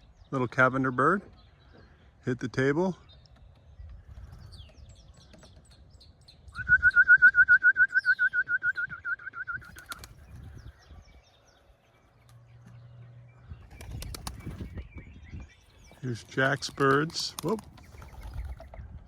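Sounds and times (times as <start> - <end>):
pigeon flapping wings: 9.6 - 10.4, 13.7 - 14.7, 16.2 - 18.8.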